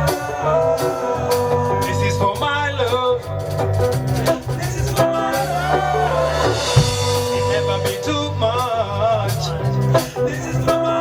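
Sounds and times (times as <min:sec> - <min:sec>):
bass line: 0:00.0 - 0:11.0
live reggae band music: 0:00.0 - 0:11.0
drum hits: 0:06.3 - 0:08.3.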